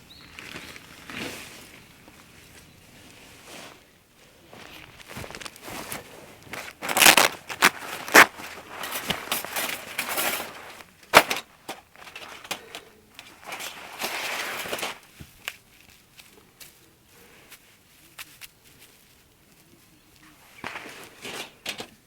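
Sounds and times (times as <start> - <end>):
rustling and crunching: 0.0 - 22.0.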